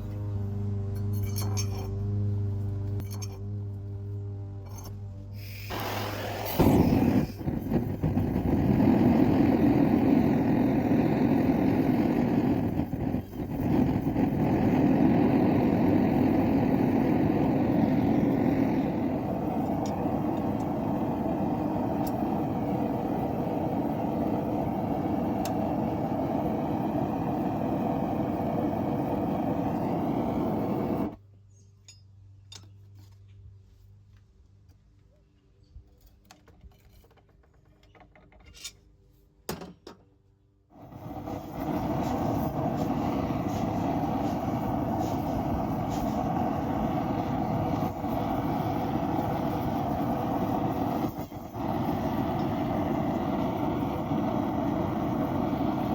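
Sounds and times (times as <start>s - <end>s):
low hum: 0.0s - 31.2s, 40.8s - 55.9s
forge burner roaring: 5.4s - 31.2s, 40.7s - 55.9s.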